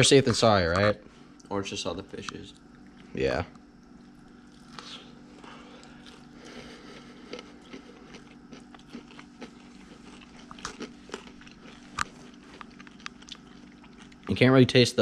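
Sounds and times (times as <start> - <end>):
crunchy chewing: 2.2 - 14.6.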